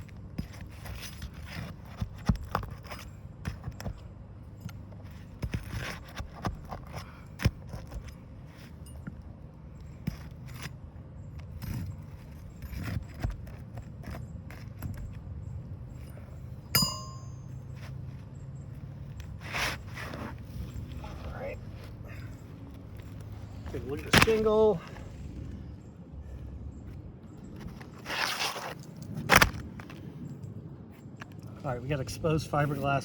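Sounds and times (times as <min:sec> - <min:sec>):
ringing metal clink: 0:16.7 - 0:17.8.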